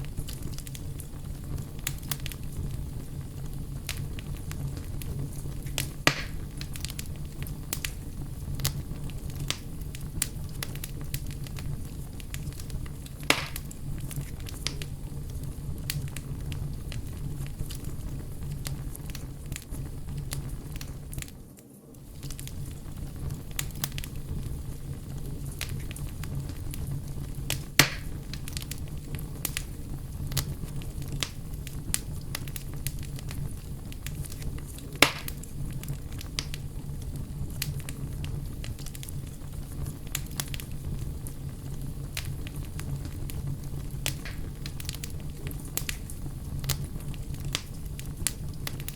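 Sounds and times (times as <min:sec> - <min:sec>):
campfire crackling: 0:00.0 - 0:48.9
loud fire pops: 0:00.0 - 0:48.9.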